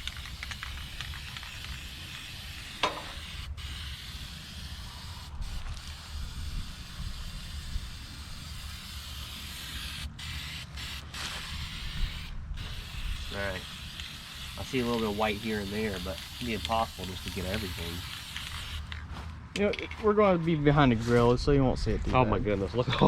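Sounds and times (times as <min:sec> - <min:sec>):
paint spray gun hissing: 0:00.0 - 0:18.9
steady low rumble: 0:11.0 - 0:15.3, 0:18.7 - 0:23.0.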